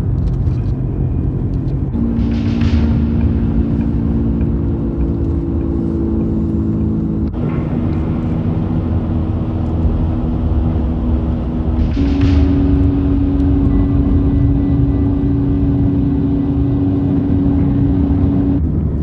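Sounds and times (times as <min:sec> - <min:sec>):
car engine: 0:00.0 - 0:19.0
road rumble: 0:00.0 - 0:19.0.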